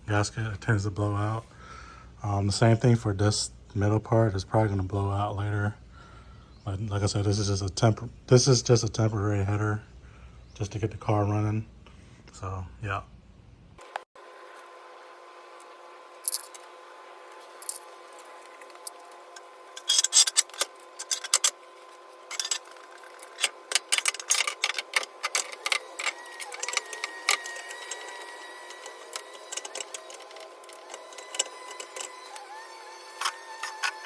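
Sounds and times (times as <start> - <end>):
faint steady hum: 0.0 - 34.0
hand tools clicking on metal: 19.8 - 21.6, 22.3 - 32.5.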